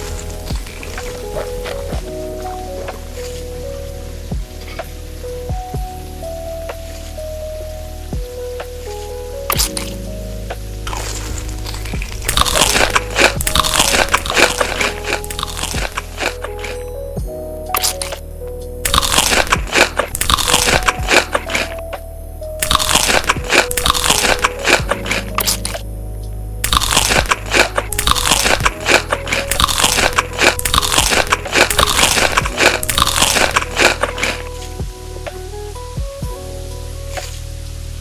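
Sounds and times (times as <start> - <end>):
crunchy food chewing: 0.0 - 2.1, 10.9 - 16.8, 18.9 - 21.8, 22.6 - 25.8, 26.6 - 34.8
background music: 0.0 - 38.0.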